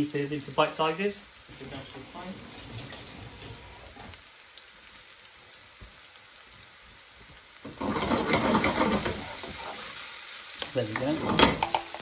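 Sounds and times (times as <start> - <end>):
onions sizzling in a pan: 0.0 - 12.0
metal spoon stirring a pan: 7.6 - 12.0.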